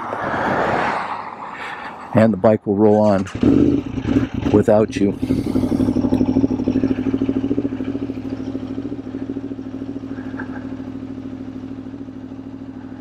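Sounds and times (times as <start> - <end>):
motorcycle engine idling: 3.1 - 13.0.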